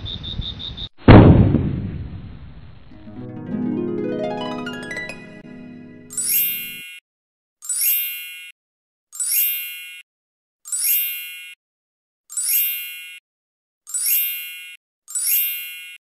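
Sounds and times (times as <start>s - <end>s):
bright chime-like ding: 6.0s - 7.0s.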